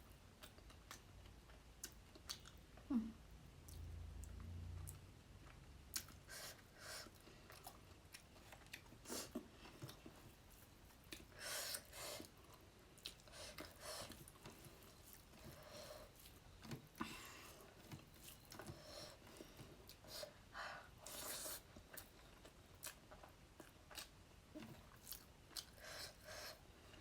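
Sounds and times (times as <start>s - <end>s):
wet chewing and mouth clicks: 0.4s - 2.9s, 3.6s - 15.5s, 21.0s - 26.5s.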